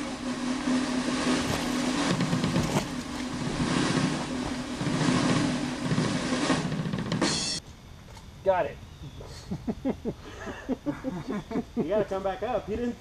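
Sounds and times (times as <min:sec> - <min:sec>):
steady buzz: 0:00.0 - 0:08.6
tyres rattling over rock: 0:01.2 - 0:06.2.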